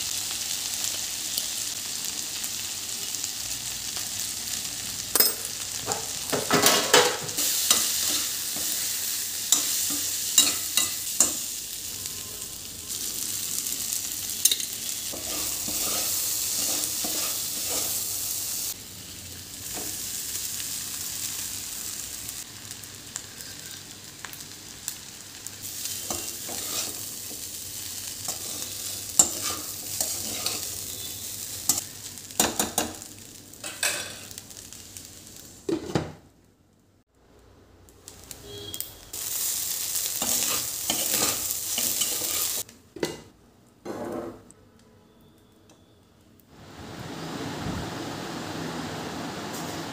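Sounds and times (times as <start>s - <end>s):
food sizzling in a pan: 0.0s - 36.3s, 37.8s - 43.3s, 46.4s - 49.9s
spatula scraping a pan: 14.8s - 18.1s, 25.8s - 27.4s, 28.2s - 31.1s, 40.2s - 42.6s.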